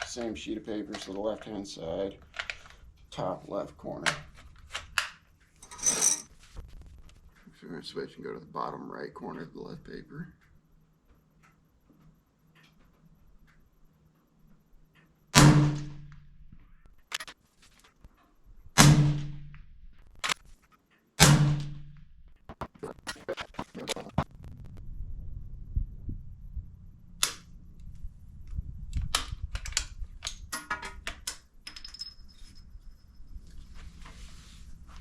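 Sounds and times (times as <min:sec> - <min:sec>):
rifle handling clicks and clatter: 0:00.0 - 0:03.1, 0:04.0 - 0:06.4, 0:16.9 - 0:18.3, 0:28.9 - 0:32.2
suppressed rifle shots: 0:15.4 - 0:16.1, 0:18.8 - 0:19.5.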